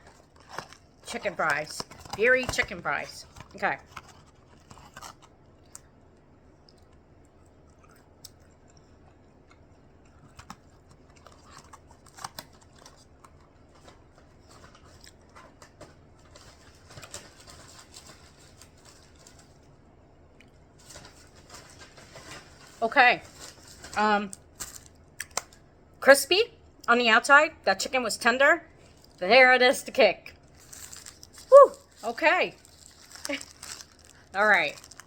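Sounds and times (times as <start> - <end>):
chewing crispy chicken: 6.6 - 15.8, 30.5 - 35.0.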